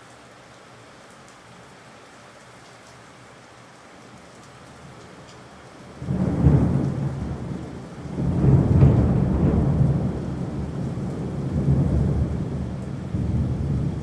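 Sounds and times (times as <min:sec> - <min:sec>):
steady rain: 0:00.0 - 0:14.0
rolling thunder: 0:06.0 - 0:14.0.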